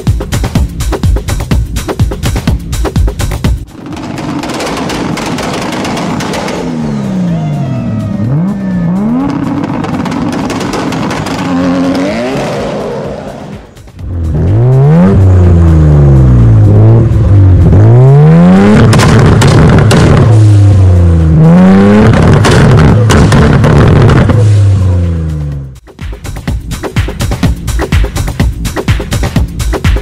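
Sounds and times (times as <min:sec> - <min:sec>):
car engine accelerating hard: 0:03.7 - 0:25.7.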